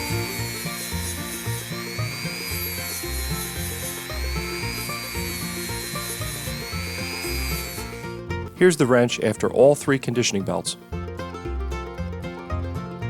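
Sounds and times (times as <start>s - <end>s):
belt sander grinding steel: 0.0s - 9.7s
lively reel tune: 0.0s - 13.0s.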